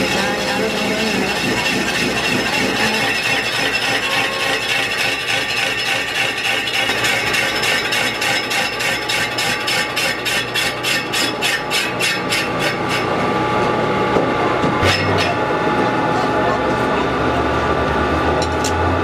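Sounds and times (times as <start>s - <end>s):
hand tool striking metal rim: 0.0s - 13.1s.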